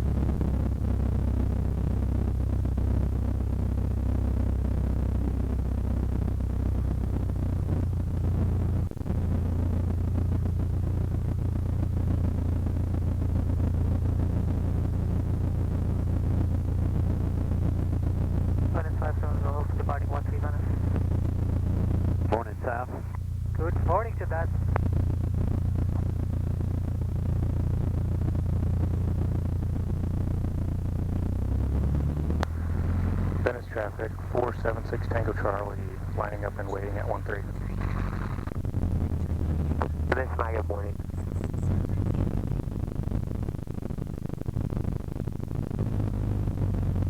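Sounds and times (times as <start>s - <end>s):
aircraft engine droning: 17.0s - 47.0s.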